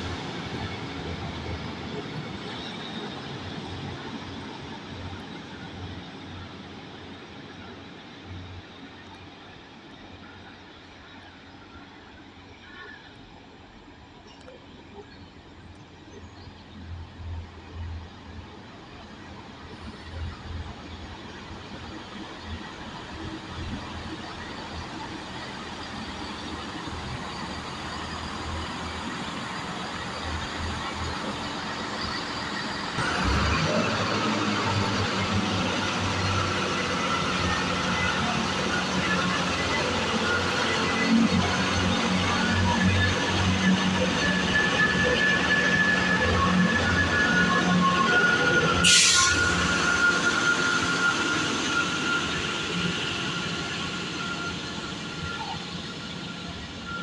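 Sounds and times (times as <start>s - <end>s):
train diesel engine running: 0.0s - 57.0s
short burst of hiss: 48.8s - 49.6s.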